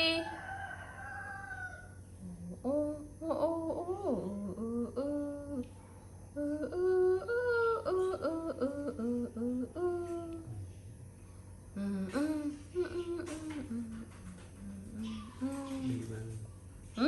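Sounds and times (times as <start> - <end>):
person humming a tune: 2.2 - 5.7, 6.4 - 10.6, 11.8 - 16.3.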